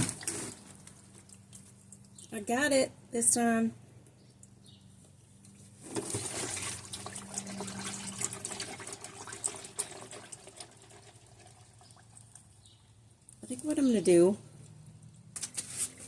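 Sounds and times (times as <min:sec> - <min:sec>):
oil pouring and splattering: 0:00.0 - 0:02.3, 0:05.9 - 0:12.7.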